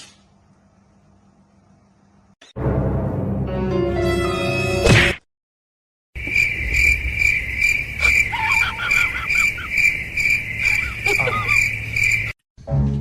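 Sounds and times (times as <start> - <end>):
cricket chirping: 6.2 - 12.4
faint squeaky calls: 7.9 - 12.3.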